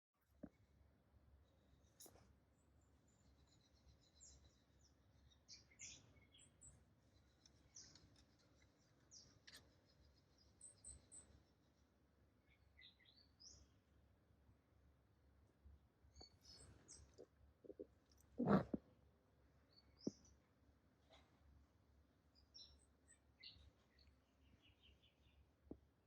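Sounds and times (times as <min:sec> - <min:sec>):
faint bird chirps: 0:01.4 - 0:13.8, 0:16.1 - 0:18.8, 0:22.3 - 0:25.8.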